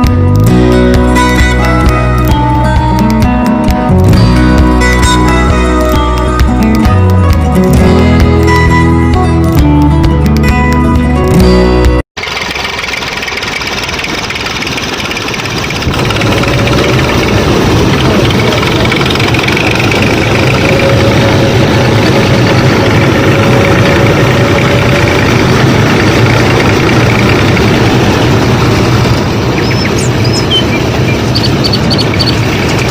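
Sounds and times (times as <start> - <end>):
music: 0.0 - 12.0
small motor running: 12.2 - 28.2.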